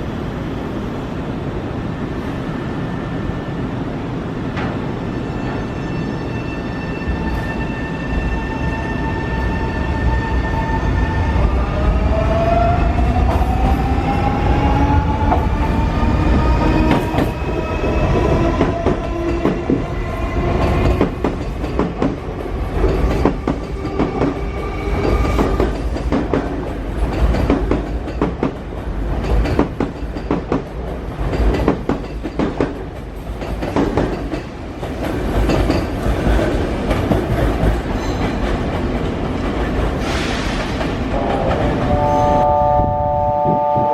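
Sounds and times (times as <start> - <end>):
wheels clacking over rail joints: 25.0 - 42.0.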